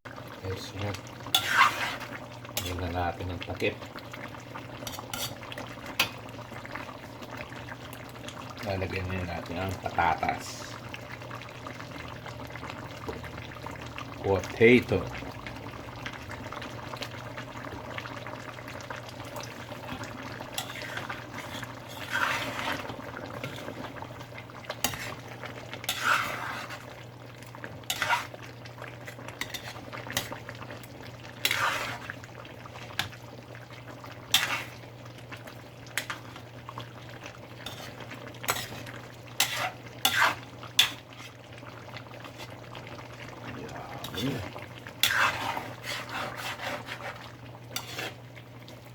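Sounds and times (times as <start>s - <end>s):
utensil scraping and knocking a pot: 1.3s - 2.8s, 4.8s - 5.4s, 20.5s - 23.8s, 24.8s - 25.2s, 25.9s - 26.9s, 27.9s - 28.4s, 29.4s - 30.4s, 31.4s - 32.1s, 37.6s - 41.4s, 45.0s - 47.2s, 47.8s - 48.2s.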